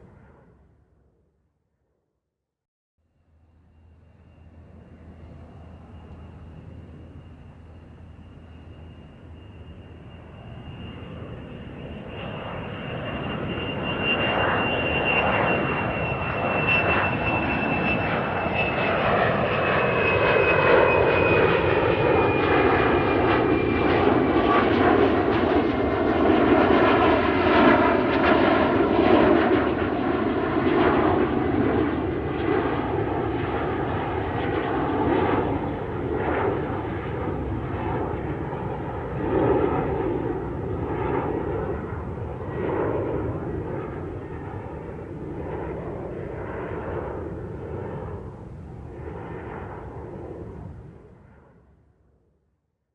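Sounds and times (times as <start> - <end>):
aeroplane flying past: 0.0 - 2.0, 3.0 - 52.4
high engine whine: 3.1 - 27.8.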